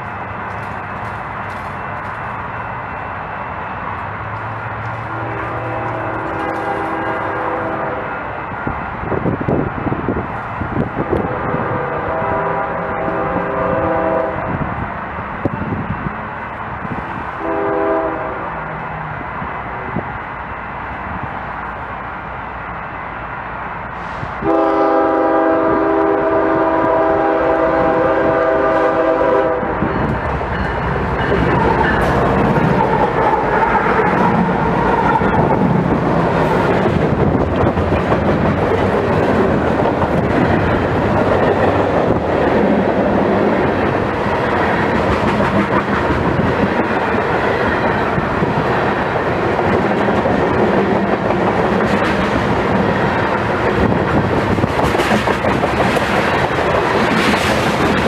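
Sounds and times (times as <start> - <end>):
train wheels on rails: 0.0 - 58.0
train horn blast: 5.0 - 8.3, 11.0 - 14.5, 17.4 - 18.6, 24.0 - 29.9.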